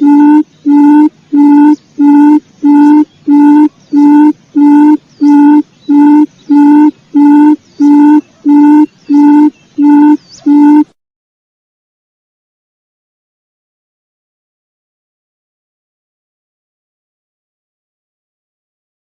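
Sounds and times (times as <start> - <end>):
quail lure call hooting: 0.0 - 10.9.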